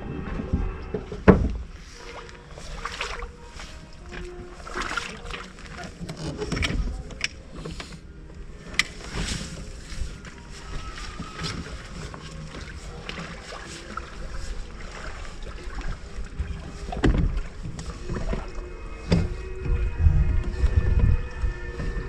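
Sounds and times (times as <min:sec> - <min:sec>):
boat low rumble: 0:00.0 - 0:22.0
wind gusts on microphone: 0:16.0 - 0:22.0.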